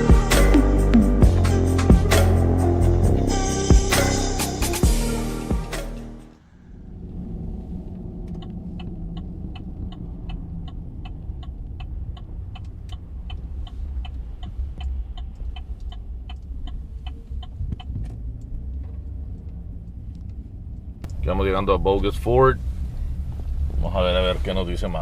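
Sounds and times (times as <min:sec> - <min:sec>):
truck engine and road rumble: 0:06.0 - 0:25.0
even ticking: 0:08.2 - 0:20.0.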